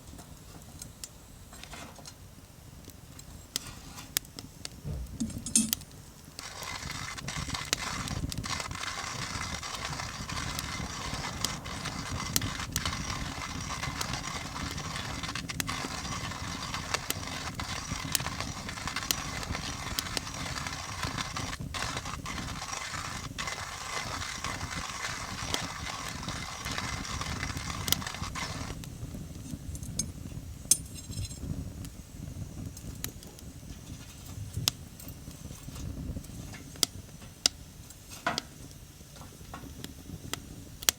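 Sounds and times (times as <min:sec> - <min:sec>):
wood fire crackling: 0:00.0 - 0:40.9
coffee grinder whirring: 0:06.4 - 0:28.9.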